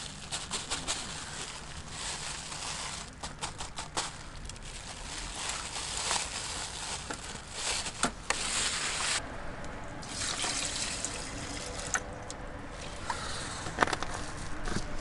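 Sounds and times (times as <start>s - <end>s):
liquid trickling and pouring: 10.0s - 12.1s.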